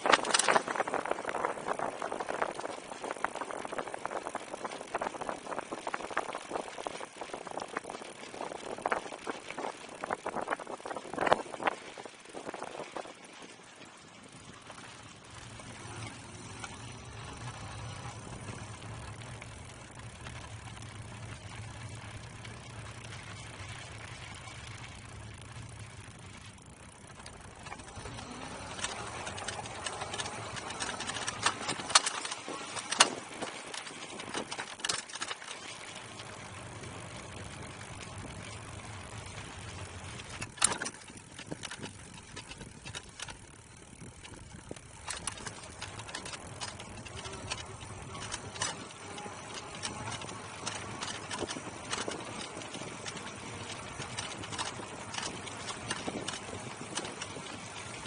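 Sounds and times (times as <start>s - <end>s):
wind noise on microphone: 0.0s - 13.6s, 40.3s - 58.0s
electric bike motor hum: 0.0s - 58.0s
sharp knocks and rattles: 27.2s - 35.6s, 45.0s - 57.5s.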